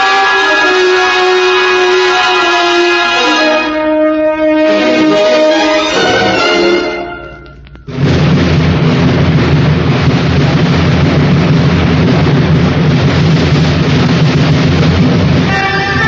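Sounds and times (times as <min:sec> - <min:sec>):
low rumble: 0:07.4 - 0:16.0
loud steady rushing noise: 0:07.6 - 0:16.0.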